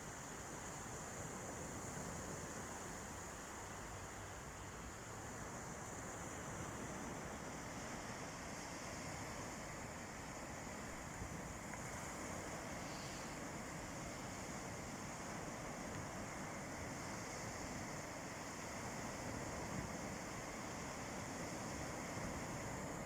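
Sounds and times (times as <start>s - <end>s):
sea waves washing on beach: 5.2s - 23.0s.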